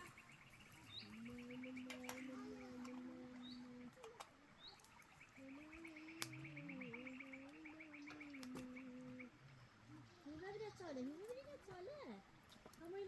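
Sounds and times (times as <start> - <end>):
low wavering humming tone: 0.0 - 9.8
faint bird chirps: 0.0 - 11.6.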